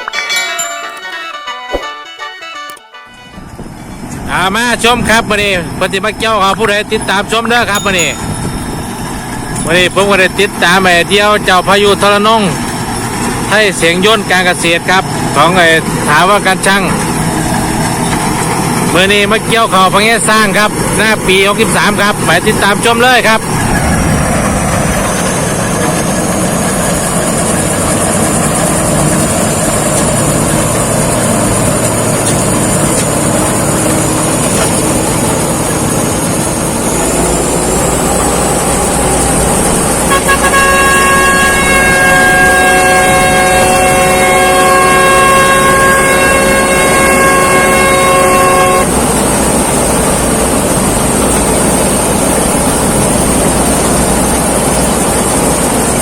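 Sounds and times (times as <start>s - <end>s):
combine harvester running: 0.0s - 56.0s
vehicle horn blast: 1.2s - 3.6s, 40.0s - 49.0s
high mechanical whine: 3.4s - 56.0s.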